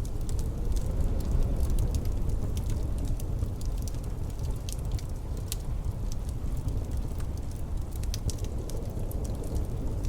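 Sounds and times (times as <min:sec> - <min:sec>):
low rumble of wind: 0:00.0 - 0:10.0
wood fire crackling: 0:00.0 - 0:10.0.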